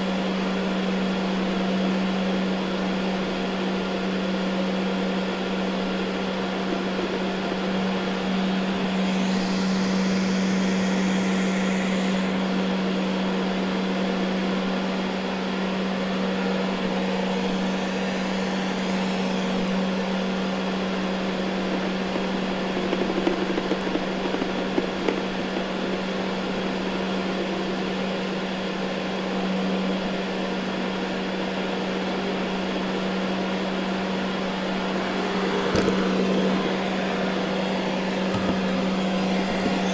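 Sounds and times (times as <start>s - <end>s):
robot vacuum motor hum: 6.8s - 27.2s, 34.1s - 39.9s.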